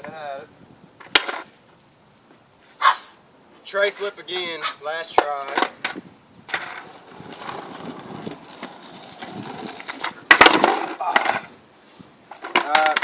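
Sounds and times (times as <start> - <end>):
skateboard wheels rolling: 1.0 - 1.6, 5.0 - 11.6, 12.2 - 13.0
skateboard clacking and clattering: 5.2 - 11.5, 12.3 - 13.0.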